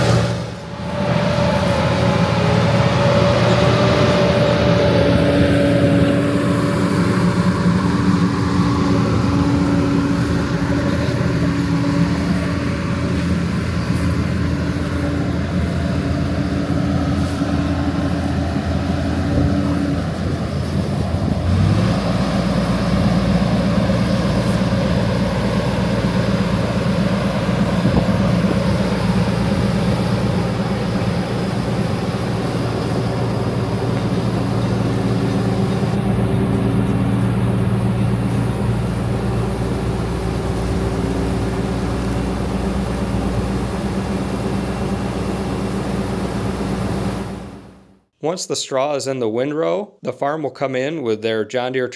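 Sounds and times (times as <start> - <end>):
combine harvester engine hum: 0.0 - 48.1.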